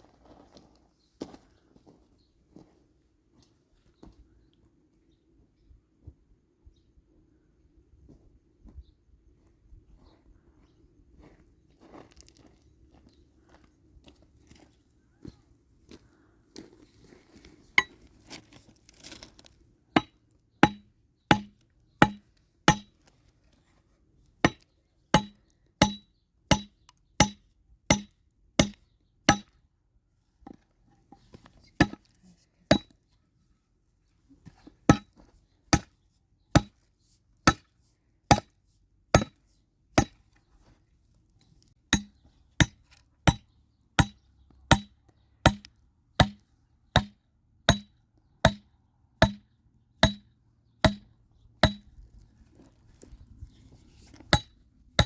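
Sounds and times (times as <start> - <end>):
hammer driving nails into wood: 25.2 - 29.5, 47.0 - 47.9.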